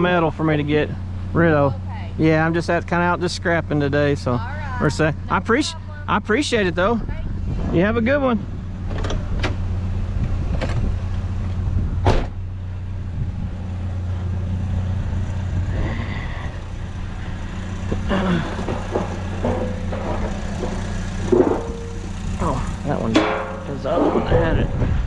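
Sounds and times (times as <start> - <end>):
vehicle engine idling: 0.0 - 25.0
clattering knocks: 17.8 - 22.4, 23.1 - 24.3.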